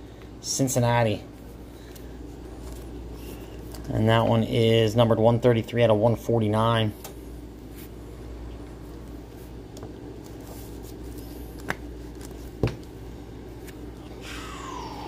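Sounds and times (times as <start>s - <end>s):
low hum: 13.0s - 15.0s.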